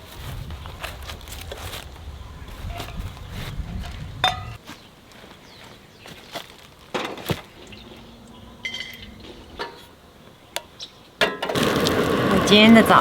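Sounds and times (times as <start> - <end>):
light knocks and clinks: 4.2 - 4.6.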